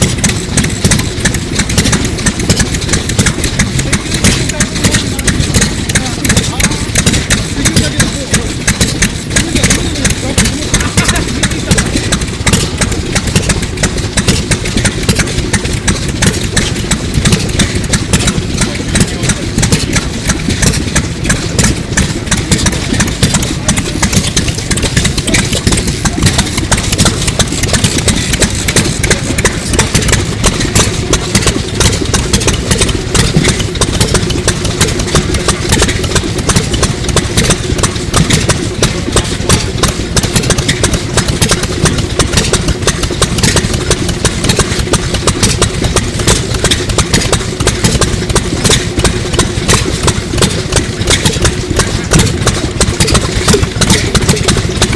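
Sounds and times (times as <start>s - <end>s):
engine idling with even beat: 0.0s - 54.9s.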